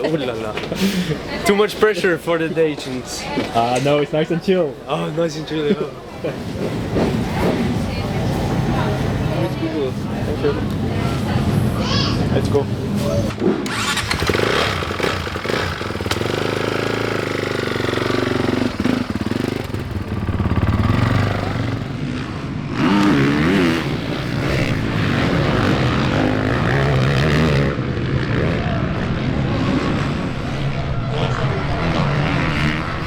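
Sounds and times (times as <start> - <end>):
motocross bike engine revving: 13.2 - 33.0.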